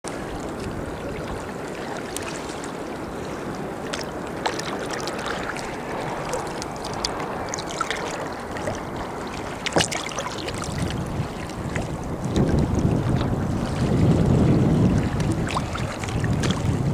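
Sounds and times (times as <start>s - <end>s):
water lapping against a kayak: 0.0s - 16.9s
wind on microphone: 0.1s - 16.9s
small splashes and drips: 3.8s - 13.3s, 14.9s - 16.8s.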